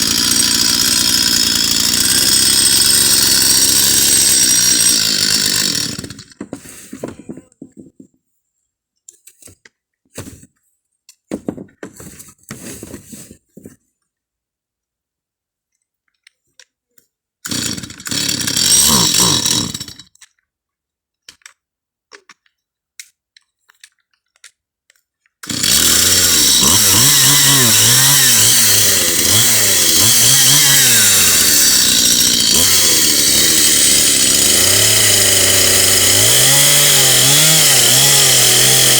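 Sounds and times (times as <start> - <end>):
chainsaw running: 0.0 - 6.6, 17.5 - 20.1, 25.4 - 38.9.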